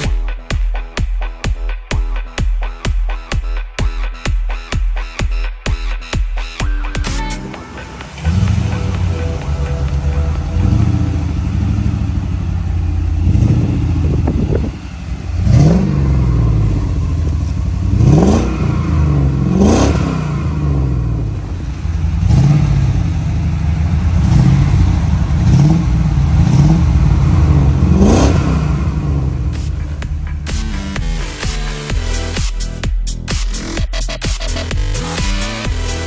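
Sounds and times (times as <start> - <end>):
engine idling and revving: 6.9 - 32.9, 34.5 - 36.0.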